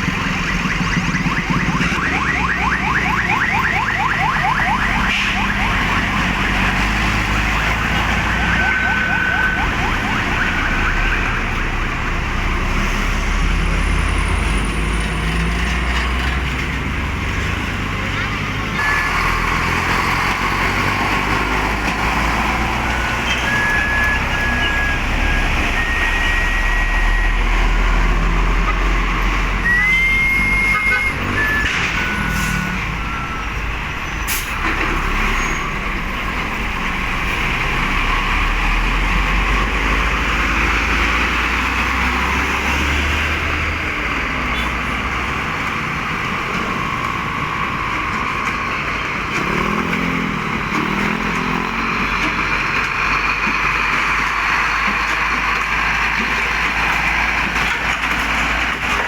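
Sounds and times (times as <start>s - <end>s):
truck engines rumbling: 0.0s - 59.0s
high-pitched squeals: 28.7s - 34.5s.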